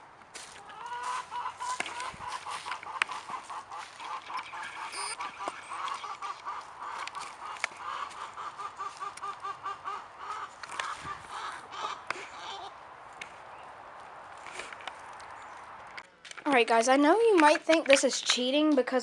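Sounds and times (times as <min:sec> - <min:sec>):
poultry calling: 0:00.4 - 0:12.9.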